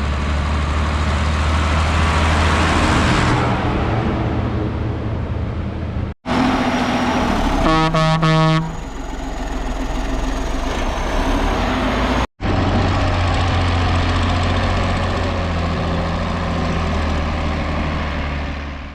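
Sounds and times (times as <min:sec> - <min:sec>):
tractor engines running: 0:00.0 - 0:18.9
horn toots: 0:07.6 - 0:09.0.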